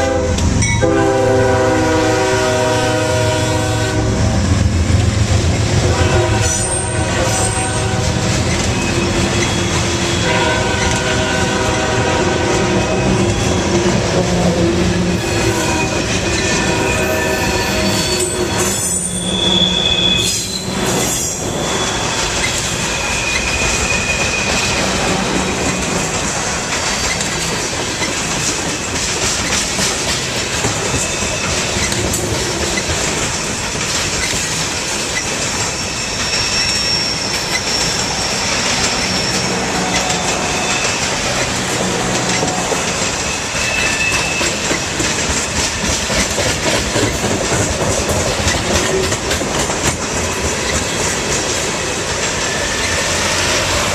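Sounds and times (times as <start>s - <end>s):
train wheels rumbling on rails: 0.0s - 53.9s
high-pitched wheel squeals: 6.4s - 11.0s, 15.2s - 25.9s, 30.9s - 32.0s, 35.2s - 45.0s
clicking over rail joints: 23.3s - 35.7s, 44.1s - 53.8s.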